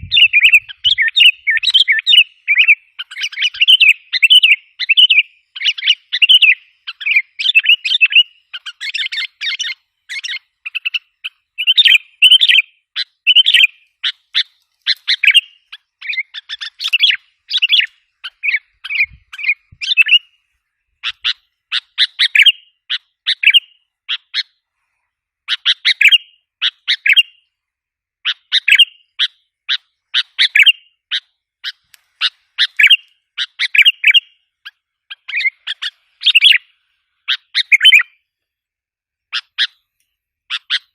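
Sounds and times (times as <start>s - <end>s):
bulbul chirping: 0.0s - 20.3s, 37.3s - 38.2s.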